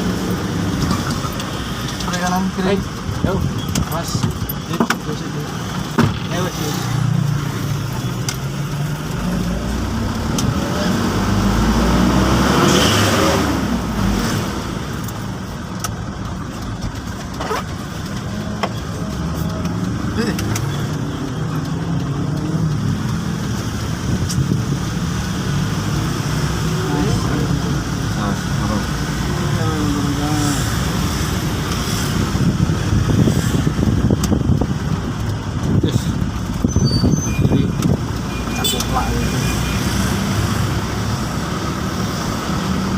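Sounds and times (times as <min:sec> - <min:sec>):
truck engine rumble: 0:00.0 - 0:42.9
vehicle passing by: 0:09.2 - 0:14.8.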